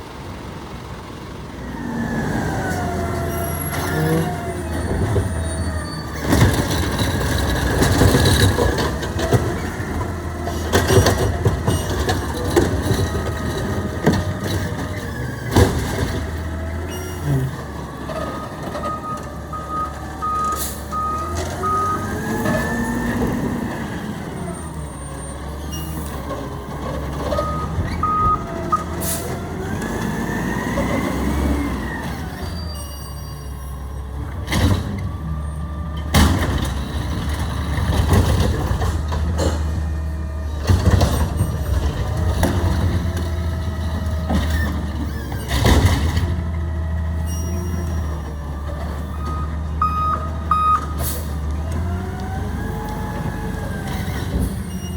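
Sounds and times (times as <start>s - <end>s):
diesel engine revving: 0.0s - 32.8s, 33.6s - 54.9s
reversing alarm beeping: 18.2s - 22.6s, 27.3s - 29.3s, 49.0s - 51.3s.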